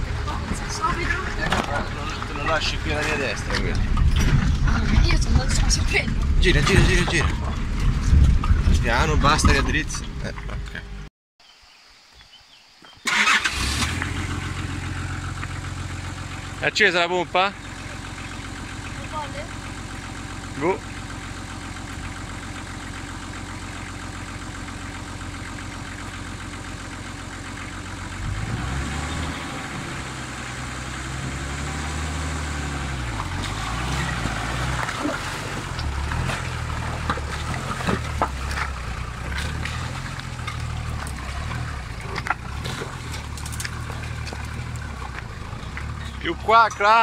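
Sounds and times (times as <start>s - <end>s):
knocks and clatter: 0.0s - 10.8s, 33.0s - 47.0s
truck engine idling and revving: 0.0s - 11.1s, 13.1s - 47.0s.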